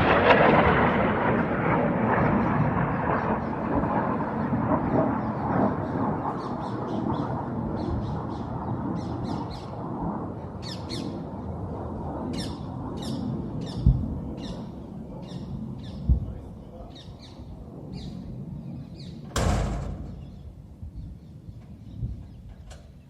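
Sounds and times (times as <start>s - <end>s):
low rumble of distant blasts: 0.0s - 23.0s
dull thump: 19.3s - 20.7s.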